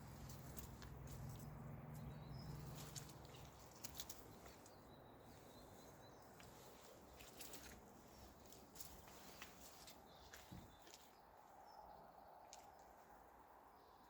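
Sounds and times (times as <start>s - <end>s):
footsteps rustling through undergrowth: 0.0s - 11.2s.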